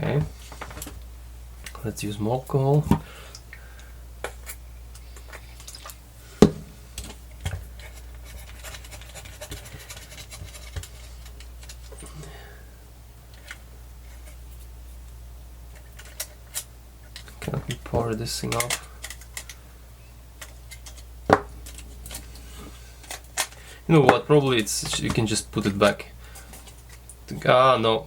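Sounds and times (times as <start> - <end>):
steady low hum: 0.0 - 28.0
faint scratching and rubbing: 7.7 - 11.8
small clicks and knocks of handling: 18.4 - 19.6.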